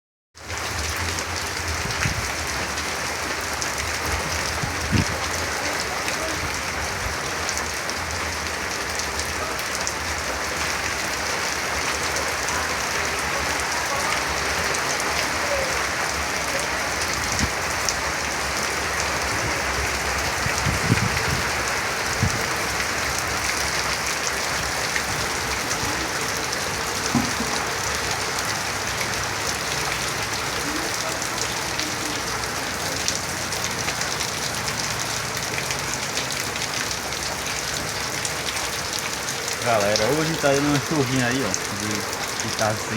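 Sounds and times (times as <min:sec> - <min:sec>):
steady rain falling: 0:00.4 - 0:42.9
louder drips and knocks: 0:26.9 - 0:28.0.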